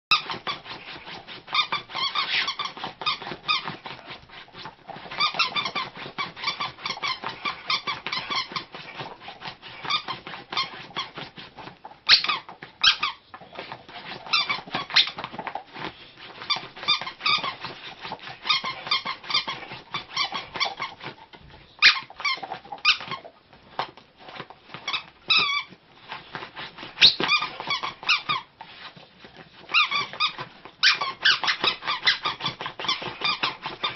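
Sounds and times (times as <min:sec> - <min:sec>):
squeaky toy squeaking: 0:00.1 - 0:00.8, 0:01.5 - 0:03.8, 0:05.1 - 0:08.8, 0:09.8 - 0:11.2, 0:12.0 - 0:13.2, 0:14.3 - 0:15.2, 0:16.5 - 0:17.6, 0:18.3 - 0:21.2, 0:21.8 - 0:23.3, 0:24.8 - 0:25.8, 0:27.0 - 0:28.5, 0:29.7 - 0:33.9
dog claws scratching fabric: 0:00.1 - 0:33.9.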